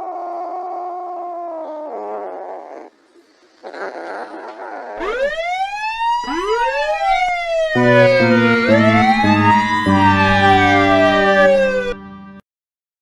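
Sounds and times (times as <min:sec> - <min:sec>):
siren sweeping up and down: 0:05.0 - 0:12.4.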